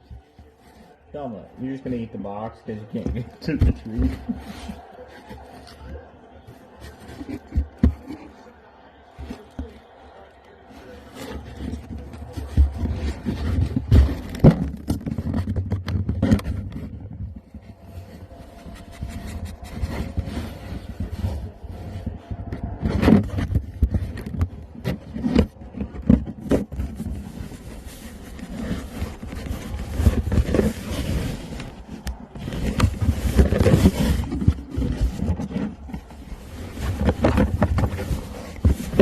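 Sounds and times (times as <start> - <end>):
dogs chewing cardboard box: 1.8 - 39.0
cardboard rustles and knocks: 11.1 - 21.6, 22.3 - 39.0.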